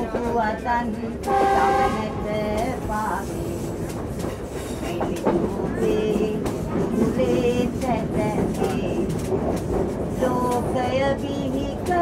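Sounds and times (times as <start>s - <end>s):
train wheels clacking on rail joints: 2.2s - 12.0s.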